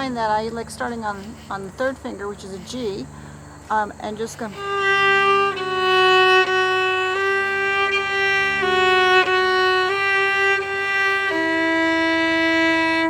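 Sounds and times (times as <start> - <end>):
fiddle bowed notes: 4.4 - 13.0.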